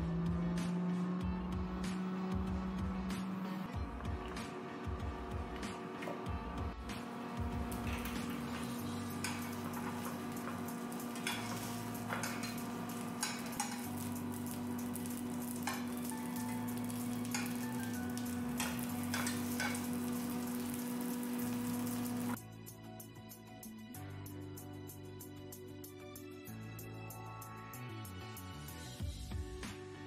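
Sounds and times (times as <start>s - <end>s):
dumplings sizzling in oil: 7.7s - 22.4s.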